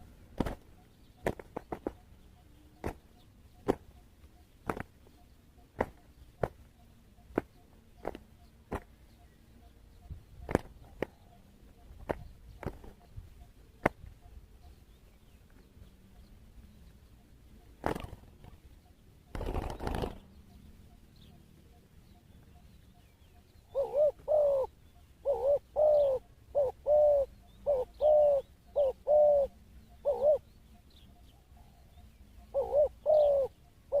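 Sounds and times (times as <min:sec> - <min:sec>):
dove cooing: 0:23.6 - 0:30.5, 0:31.3 - 0:34.0.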